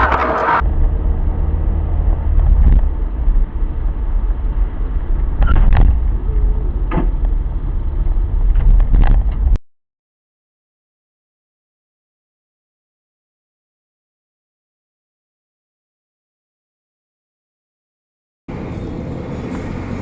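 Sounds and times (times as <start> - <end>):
car road and engine rumble: 0.0 - 9.6, 18.5 - 20.0.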